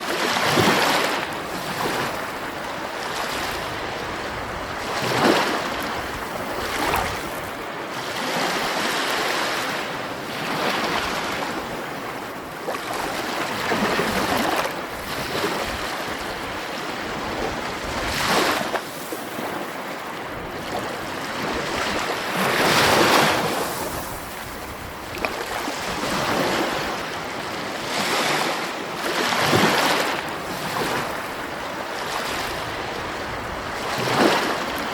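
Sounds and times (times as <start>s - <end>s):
sea waves breaking: 0.0s - 34.9s.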